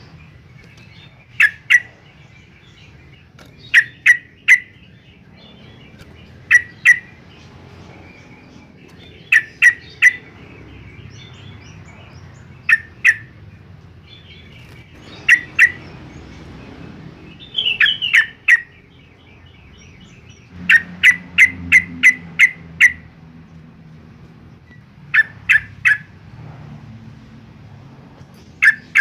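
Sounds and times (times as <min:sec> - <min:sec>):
bird chattering: 0:00.0 - 0:23.3, 0:24.6 - 0:26.2, 0:28.4 - 0:29.0
bird giving sharp call notes: 0:06.5 - 0:07.1, 0:20.6 - 0:23.0.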